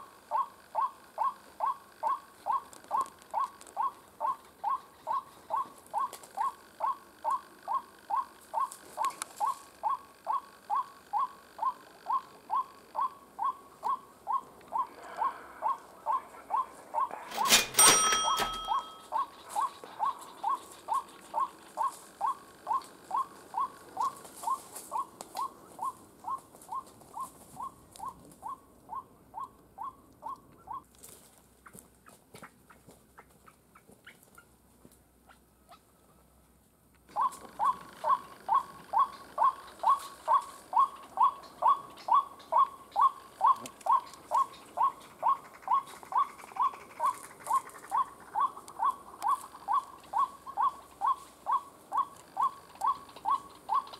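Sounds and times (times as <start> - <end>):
waterhen calls: 37.1 - 53.9.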